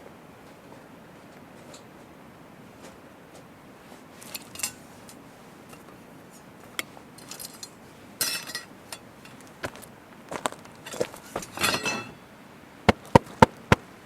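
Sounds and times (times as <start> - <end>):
metal utensils clinking: 4.2 - 4.8, 6.8 - 9.4, 10.8 - 12.3.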